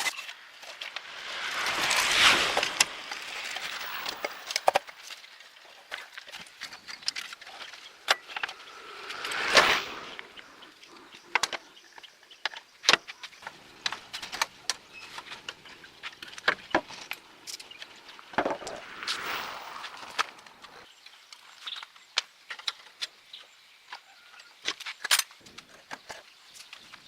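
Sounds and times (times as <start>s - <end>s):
metal scraping: 0.0s - 5.1s, 6.6s - 10.7s.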